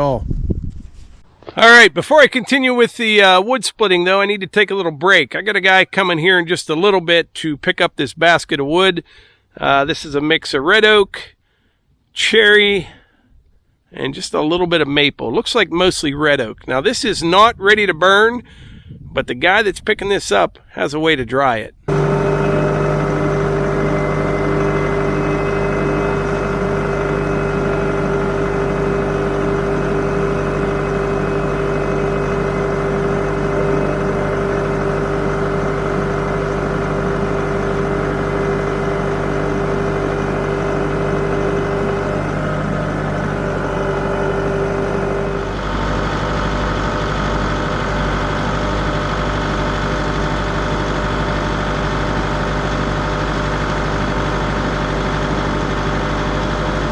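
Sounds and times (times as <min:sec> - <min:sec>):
engine running: 0:21.9 - 0:56.9.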